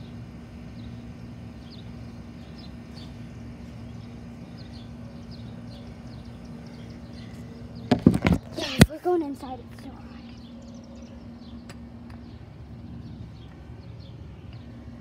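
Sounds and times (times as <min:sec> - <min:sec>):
bird chirping: 0:00.0 - 0:08.5
steady low hum: 0:00.0 - 0:15.0.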